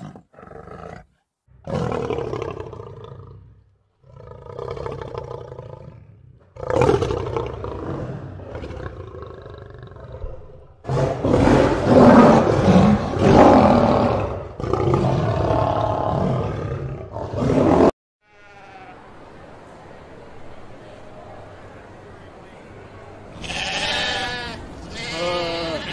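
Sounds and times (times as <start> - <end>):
lion roaring: 0.0 - 17.9.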